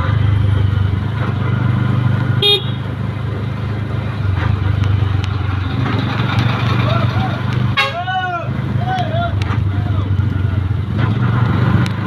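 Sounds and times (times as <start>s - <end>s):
motorcycle engine running: 0.0s - 7.8s
short horn beep: 2.4s - 2.8s.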